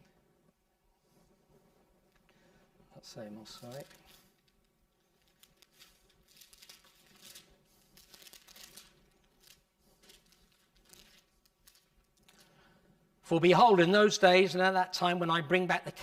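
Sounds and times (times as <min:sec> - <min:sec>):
book pages turning: 0:03.6 - 0:12.5.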